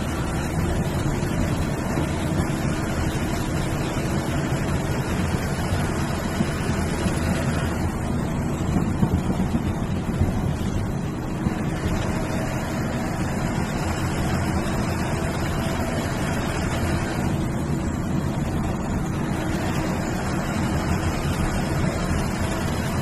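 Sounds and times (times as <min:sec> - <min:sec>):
bus engine and road noise: 0:00.0 - 0:23.0.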